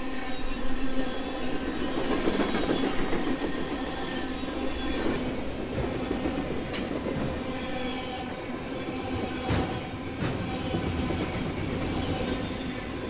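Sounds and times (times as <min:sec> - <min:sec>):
train wheels rumbling on track: 0:00.0 - 0:13.0
clicks at rail joints: 0:09.4 - 0:11.4.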